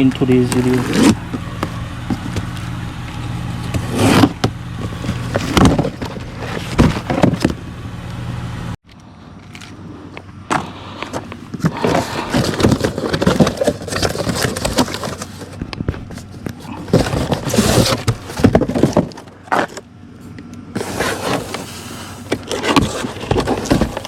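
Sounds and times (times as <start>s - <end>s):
engine knocks: 0.0s - 8.1s
car engine idling: 0.0s - 20.8s
clicks and handling noises: 8.8s - 24.0s.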